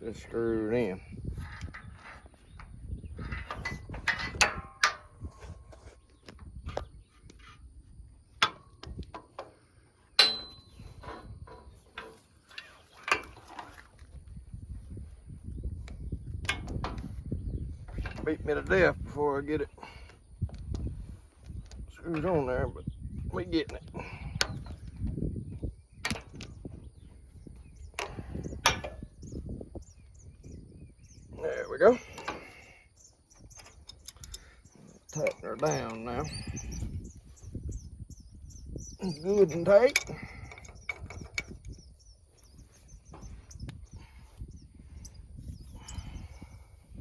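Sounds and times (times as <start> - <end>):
metal clicks and knocks: 1.4 - 7.5, 8.3 - 14.0, 26.0 - 26.6, 39.3 - 41.8
sharp metallic clank: 10.2 - 11.3
metallic knocks and clicks: 10.2 - 13.7.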